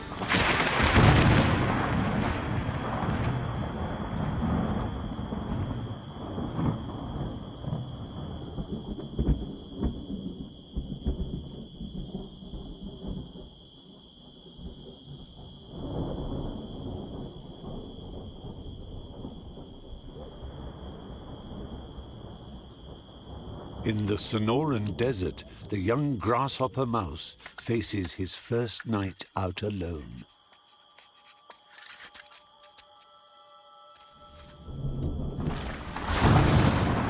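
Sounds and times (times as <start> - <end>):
thunder cracking and rumbling: 0.0 - 13.5, 14.6 - 27.2, 34.7 - 37.0
insects chirping: 0.0 - 37.0.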